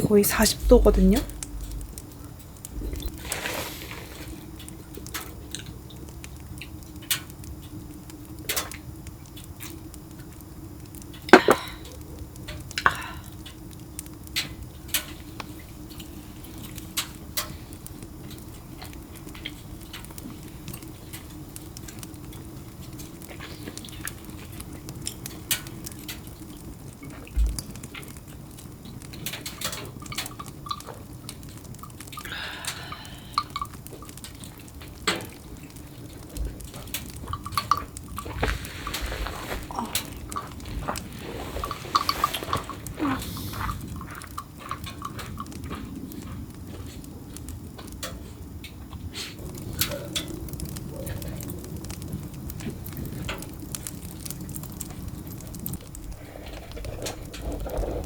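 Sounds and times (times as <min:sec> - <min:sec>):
steady low hum: 0:00.0 - 0:58.0
dishes and utensils clinking: 0:11.3 - 0:11.8.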